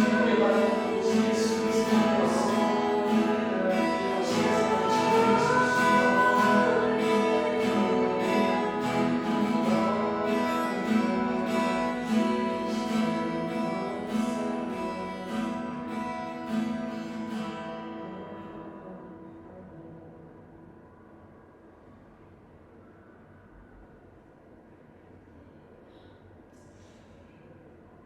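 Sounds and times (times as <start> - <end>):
acoustic guitar strumming chords: 0.0 - 19.4.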